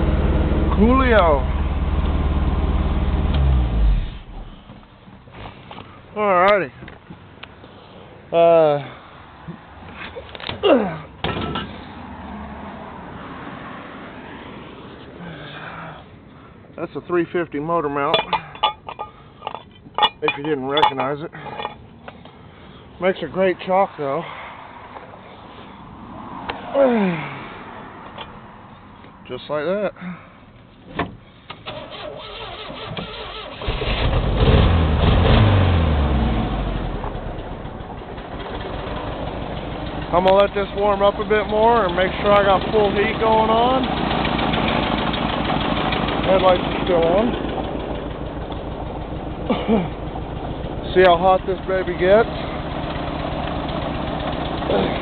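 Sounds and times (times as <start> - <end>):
pickup truck engine idling: 37.0 - 55.0.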